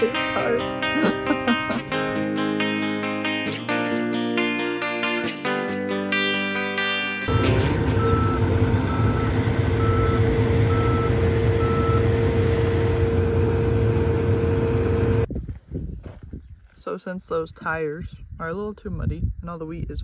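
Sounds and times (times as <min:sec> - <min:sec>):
backup alarm beeping: 0:07.3 - 0:15.3
large vehicle engine rumbling: 0:07.3 - 0:15.3.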